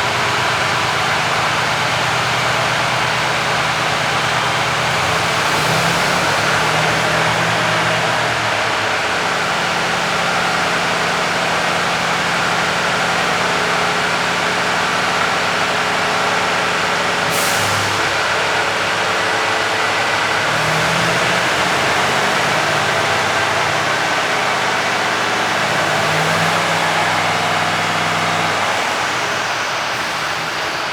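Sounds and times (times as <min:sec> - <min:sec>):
diesel engine idling: 0:00.0 - 0:30.9
compressed air hiss: 0:17.3 - 0:18.6.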